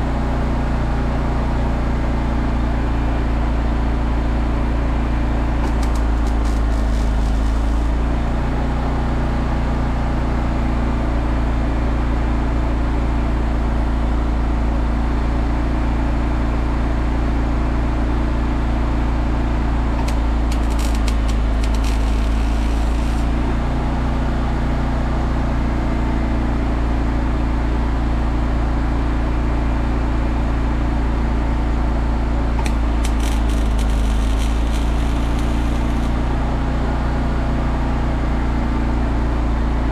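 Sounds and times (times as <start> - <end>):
low machine hum: 4.7 - 8.8, 19.5 - 24.7, 31.4 - 37.4
welding arc crackle: 5.6 - 8.2, 20.0 - 23.7, 32.6 - 36.4.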